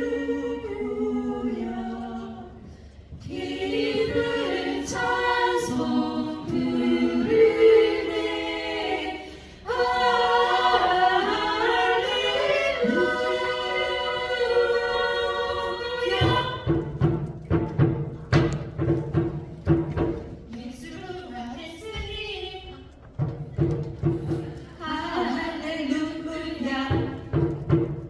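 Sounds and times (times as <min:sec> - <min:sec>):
choir singing a hymn: 0:00.0 - 0:16.9, 0:24.3 - 0:27.4.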